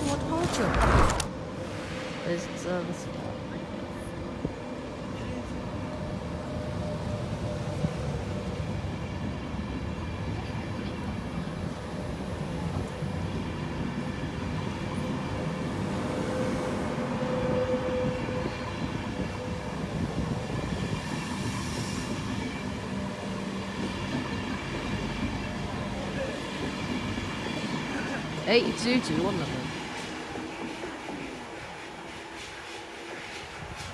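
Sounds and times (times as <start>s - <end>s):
train coaches running on rails: 0.0s - 33.9s
train hum: 0.0s - 33.9s.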